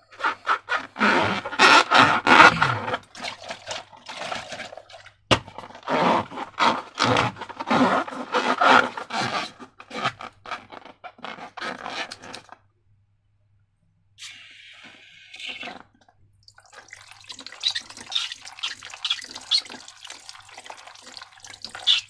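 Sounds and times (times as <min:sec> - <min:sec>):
hand rubbing slime and balloon: 0:00.1 - 0:03.0.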